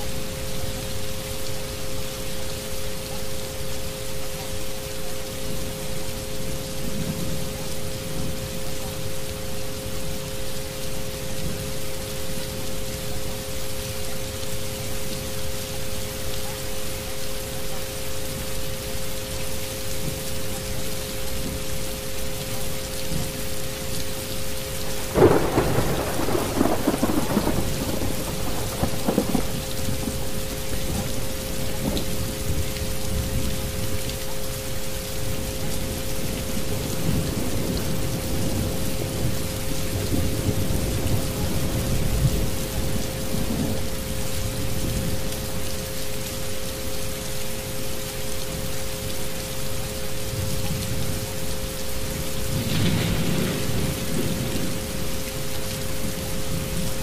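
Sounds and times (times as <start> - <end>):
steady rain: 0.0 - 57.0
thunder rolling: 24.9 - 31.0, 52.5 - 55.0.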